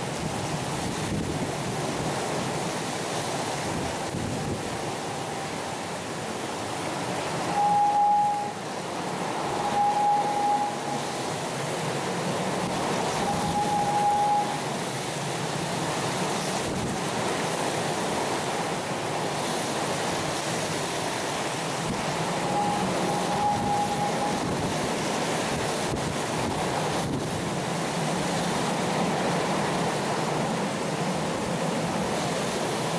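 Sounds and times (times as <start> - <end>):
heavy rain pouring: 0.0 - 32.9
short steady tone: 7.5 - 8.6, 9.4 - 11.2, 13.1 - 14.6, 22.4 - 24.5
wind gusting: 21.8 - 27.6.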